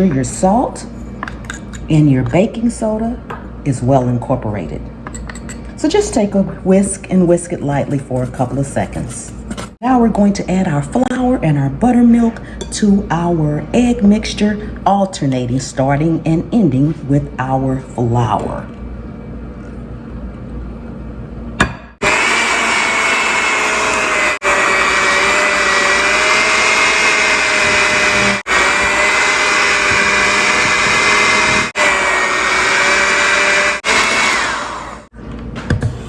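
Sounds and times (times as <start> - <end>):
electric hand mixer whining: 22.0 - 35.1.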